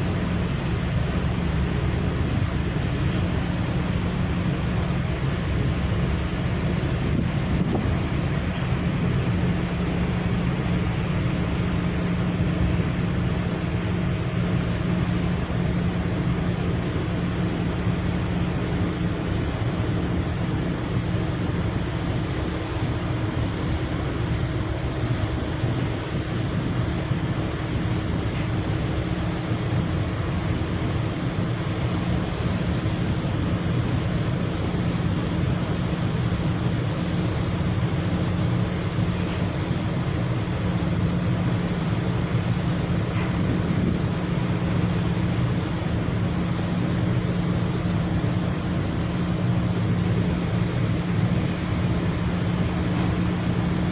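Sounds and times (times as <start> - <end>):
wind noise: 0.0 - 10.8, 29.7 - 53.9
engine drone: 0.0 - 53.9.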